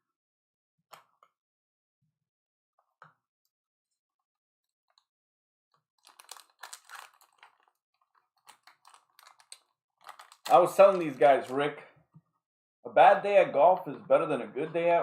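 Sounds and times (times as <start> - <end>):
irregular clicking and crackling: 5.8 - 12.2.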